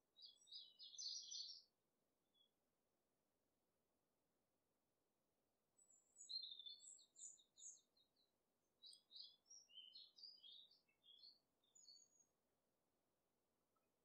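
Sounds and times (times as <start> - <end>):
bird singing high trills and chirps: 0.2 - 1.7, 5.8 - 12.3.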